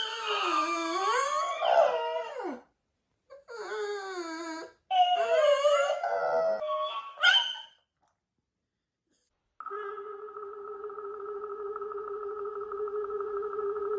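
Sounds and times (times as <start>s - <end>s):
wavering howl-like cries: 3.5s - 7.5s.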